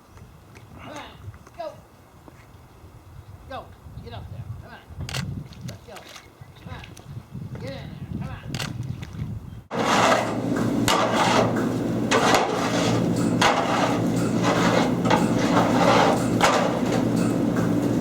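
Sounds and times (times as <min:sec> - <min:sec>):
clattering and knocking: 0:09.7 - 0:17.9
machine hum: 0:09.7 - 0:18.0.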